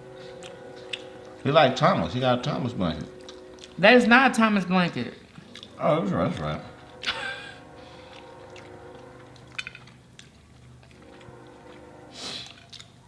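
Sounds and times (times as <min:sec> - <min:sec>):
person chewing food: 0:00.0 - 0:01.4, 0:03.2 - 0:03.8, 0:05.2 - 0:07.2, 0:07.8 - 0:13.0.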